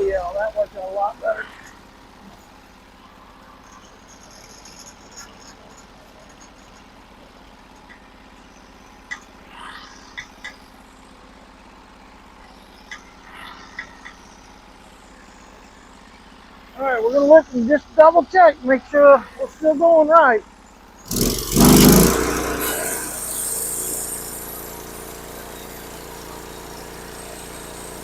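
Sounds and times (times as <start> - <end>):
sawmill engine idling: 0.0 - 28.0
short scraping sounds: 21.1 - 24.6.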